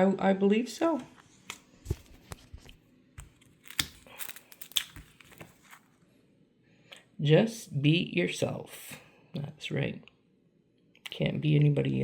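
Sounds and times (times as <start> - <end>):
paper crinkling and rustling: 1.3 - 6.0.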